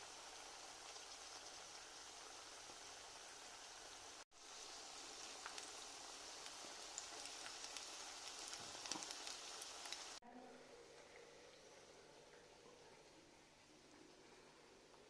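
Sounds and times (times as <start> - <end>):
food sizzling in hot oil: 0.0 - 10.2
faint hiss: 0.0 - 15.0.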